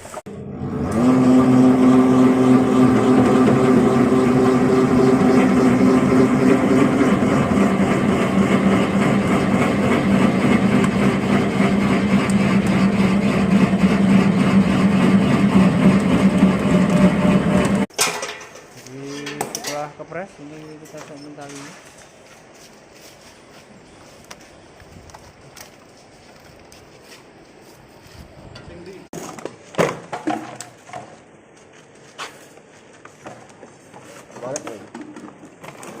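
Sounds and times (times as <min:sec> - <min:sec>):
baling press motor humming: 0:00.3 - 0:17.9.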